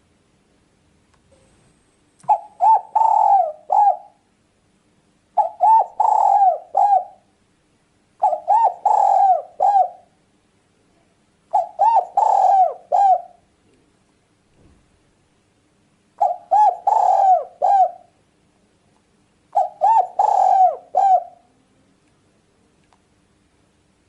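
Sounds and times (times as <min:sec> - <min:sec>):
dove cooing: 0:02.3 - 0:04.3, 0:05.4 - 0:07.3, 0:08.2 - 0:10.1, 0:11.5 - 0:13.4, 0:16.2 - 0:18.2, 0:19.5 - 0:21.5.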